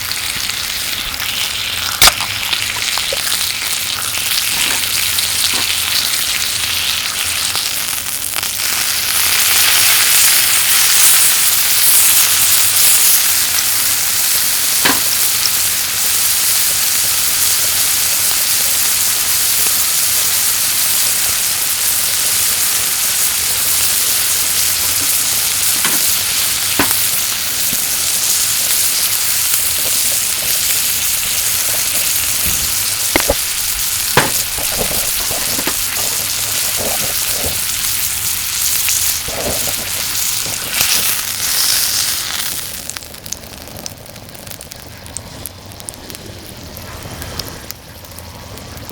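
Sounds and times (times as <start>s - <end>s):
meat sizzling: 0.0s - 48.9s
sharp clicks and pops: 1.9s - 5.8s, 29.6s - 45.2s.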